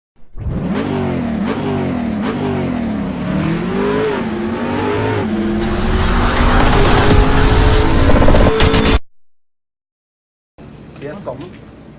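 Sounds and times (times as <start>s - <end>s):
engine revving: 0.2s - 9.0s.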